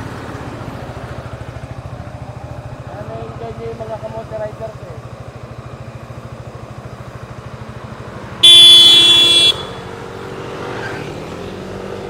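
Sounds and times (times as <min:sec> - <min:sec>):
motorcycle engine idling: 0:00.0 - 0:10.3
vehicle horn blast: 0:08.4 - 0:10.0.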